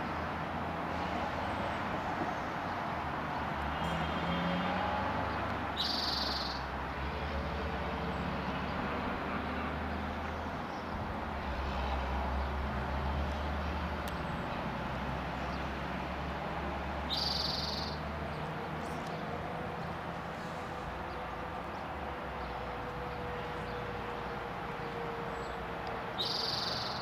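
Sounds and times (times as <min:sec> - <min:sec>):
bird singing short high songs: 0:05.8 - 0:06.7, 0:17.1 - 0:18.1, 0:26.2 - 0:27.0.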